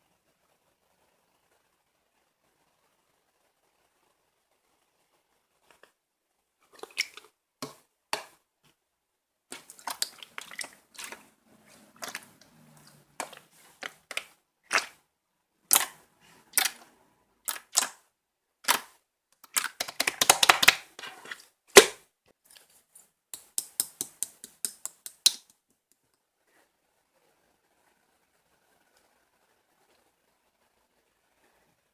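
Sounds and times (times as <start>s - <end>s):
slime crackling: 9.5s - 15.0s, 15.7s - 18.0s, 18.6s - 22.0s
slime popping and clicking: 17.5s - 18.0s, 18.6s - 20.8s, 23.4s - 25.5s.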